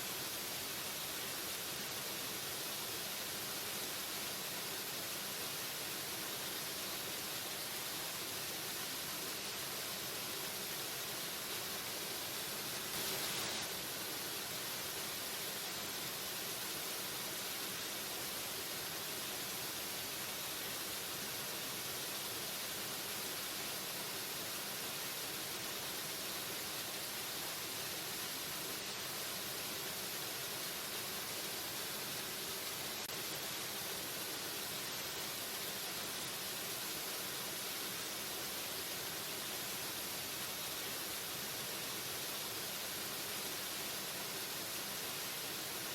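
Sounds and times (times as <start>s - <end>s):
waterfall rushing: 12.5s - 16.3s.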